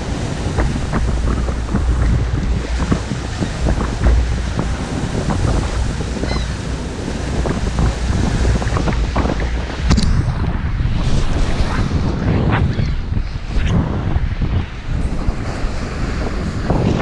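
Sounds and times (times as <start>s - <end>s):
lake waves splashing on shore: 0.0s - 12.1s
wind buffeting microphone: 0.0s - 17.0s.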